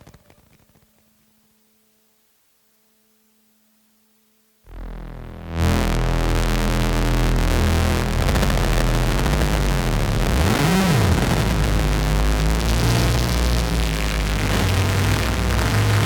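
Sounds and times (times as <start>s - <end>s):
harsh noisy synthesizer drone: 4.7s - 16.0s
synthesizer pitch swoop: 4.7s - 16.0s.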